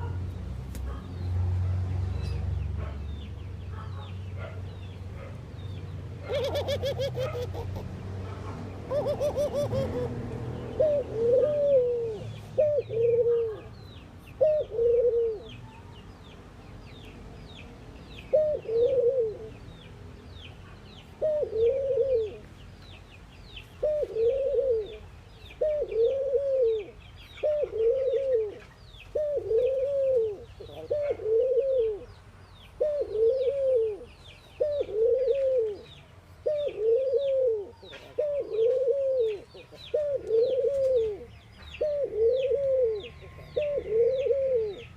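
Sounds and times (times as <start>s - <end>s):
small birds chirping: 0.0s - 44.9s
doves cooing: 6.2s - 8.0s, 8.6s - 13.7s, 14.4s - 15.6s, 18.3s - 19.6s, 21.2s - 22.5s, 23.8s - 32.1s, 32.8s - 44.9s.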